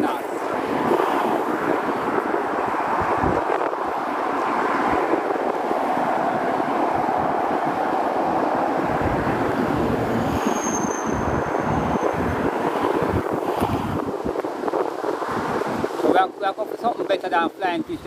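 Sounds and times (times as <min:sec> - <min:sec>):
sea waves: 0:00.0 - 0:09.8
wind: 0:00.0 - 0:18.0
wind buffeting microphone: 0:00.0 - 0:18.0.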